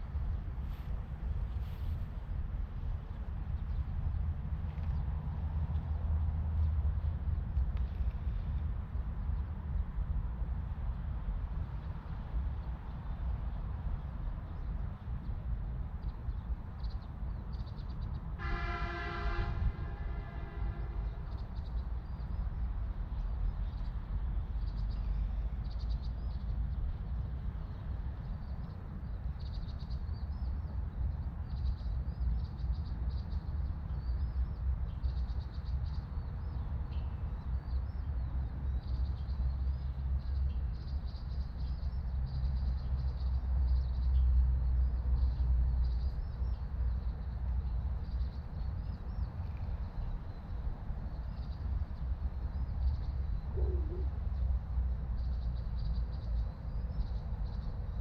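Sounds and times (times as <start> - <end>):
steady low rumble: 0.0 - 58.0
birds chirping: 52.4 - 54.4.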